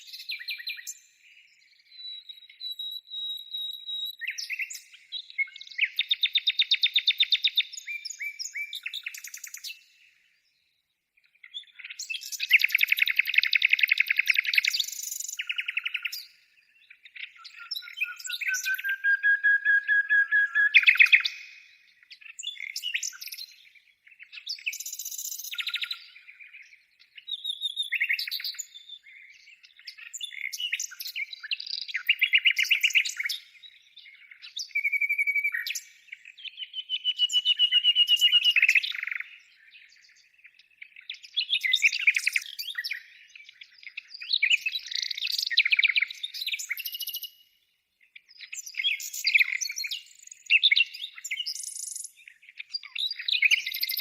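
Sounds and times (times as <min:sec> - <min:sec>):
birds chirping whistling and trilling: 0:00.0 - 0:54.0.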